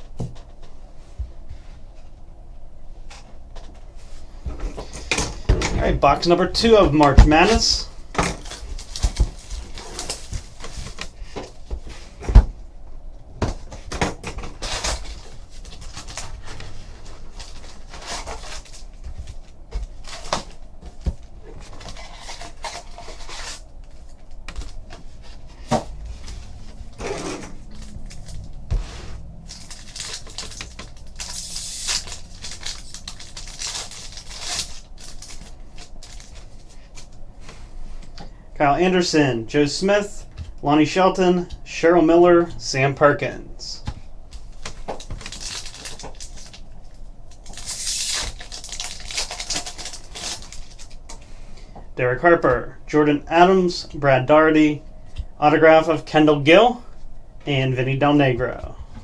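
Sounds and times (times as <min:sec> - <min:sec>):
wrapper rustling: 0:14.6 - 0:37.2, 0:44.4 - 0:51.1.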